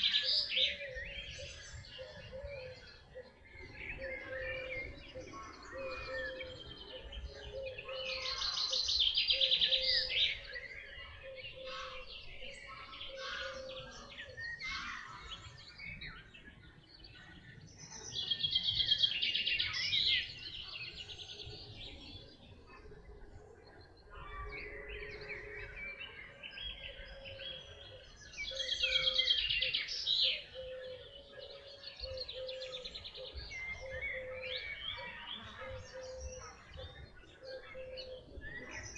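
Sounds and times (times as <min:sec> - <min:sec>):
songbirds singing in chorus: 0:00.0 - 0:38.9
bird trilling song: 0:17.8 - 0:38.9.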